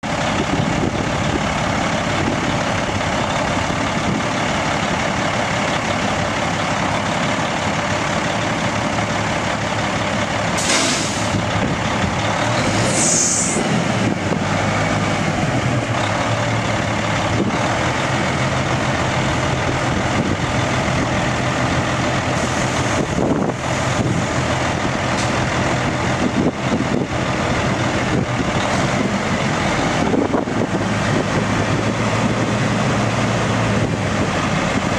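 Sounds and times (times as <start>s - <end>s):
diesel engine running: 0.0s - 34.9s
air brake hisses: 10.6s - 11.4s, 12.6s - 13.6s.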